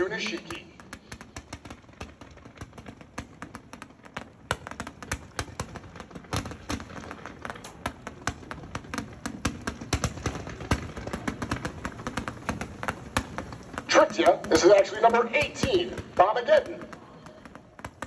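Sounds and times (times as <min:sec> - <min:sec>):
fireworks popping and banging: 0:00.0 - 0:18.0.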